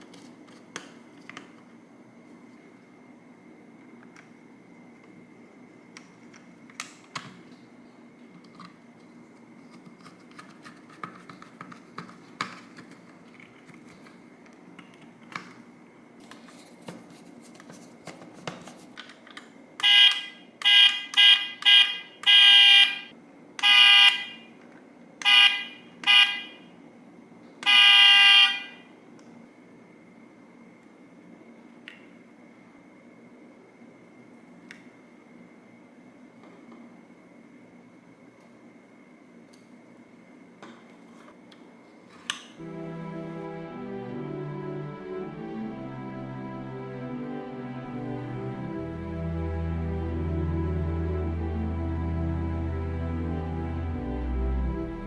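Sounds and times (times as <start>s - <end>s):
faint clicks and taps: 6.0s - 15.6s
car horn honking: 19.8s - 24.4s, 25.2s - 26.7s, 27.6s - 28.8s.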